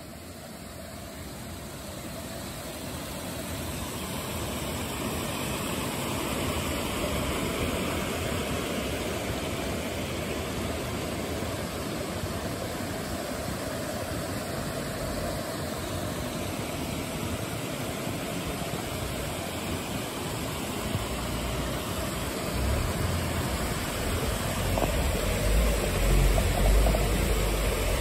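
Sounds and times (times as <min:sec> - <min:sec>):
river flowing over rocks: 0:00.0 - 0:28.0
deep wind rumble on microphone: 0:22.5 - 0:28.0.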